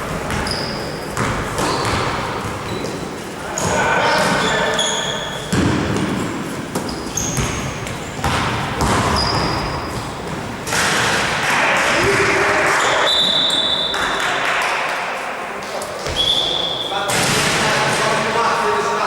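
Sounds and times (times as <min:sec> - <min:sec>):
shoe squeaks on court floor: 0:00.3 - 0:05.6, 0:06.8 - 0:08.3, 0:09.0 - 0:10.4, 0:12.8 - 0:14.2, 0:15.9 - 0:17.1
voices calling out in hall: 0:01.7 - 0:07.4, 0:11.0 - 0:19.0
ball thumps: 0:05.5 - 0:11.3.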